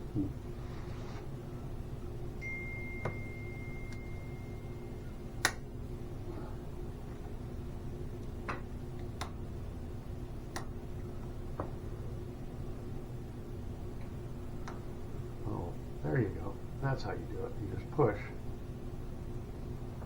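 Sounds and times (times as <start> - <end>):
low hum: 0.0 - 20.0
steady high tone: 2.4 - 5.2.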